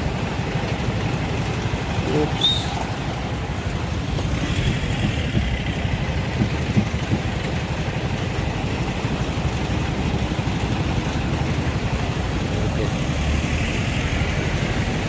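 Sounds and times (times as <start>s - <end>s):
truck engine idling low: 0.0s - 15.0s
short knocks: 4.1s - 7.6s.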